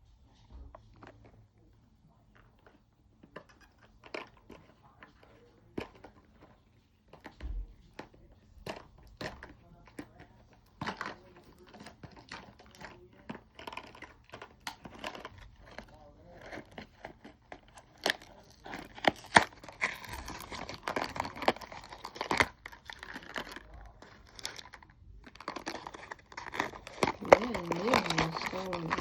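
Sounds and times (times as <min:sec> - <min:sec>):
packaging crinkling and tearing: 0:10.8 - 0:29.0.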